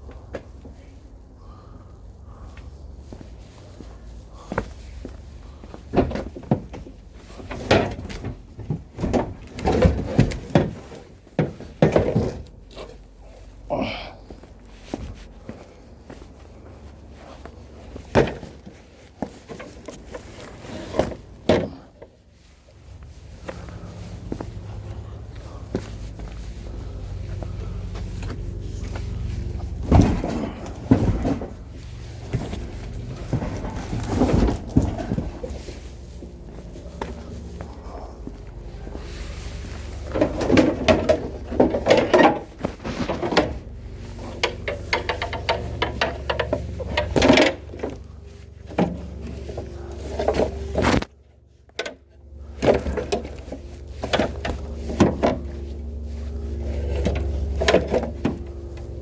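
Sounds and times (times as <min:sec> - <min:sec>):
low steady hum: 0:00.0 - 0:59.0
firewood logs knocking together: 0:05.9 - 0:13.0, 0:29.6 - 0:35.7, 0:40.1 - 0:43.6, 0:44.4 - 0:48.1
logs knocking together: 0:29.8 - 0:31.7, 0:40.1 - 0:43.6, 0:44.4 - 0:48.1.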